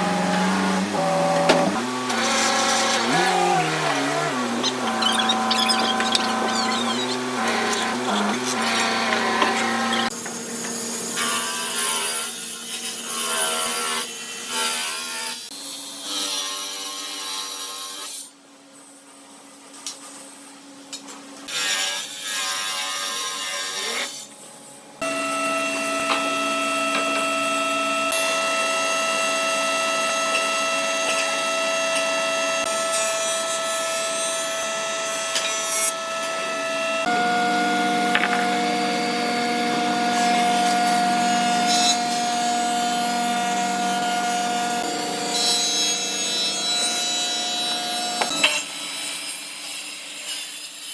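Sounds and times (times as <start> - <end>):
power tool motor whine: 0.0 - 10.2, 34.7 - 45.2
power tools working wood: 0.0 - 15.4, 25.0 - 50.4.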